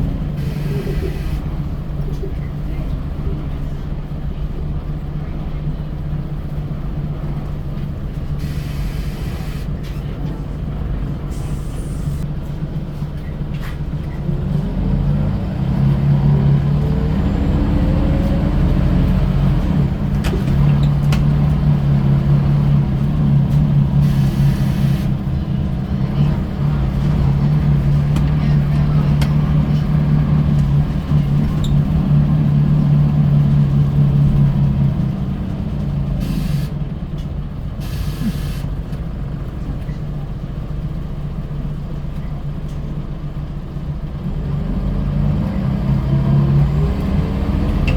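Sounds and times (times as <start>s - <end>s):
bus diesel engine running: 0.0s - 47.9s
engine whines accelerating: 14.2s - 36.2s, 44.4s - 47.9s.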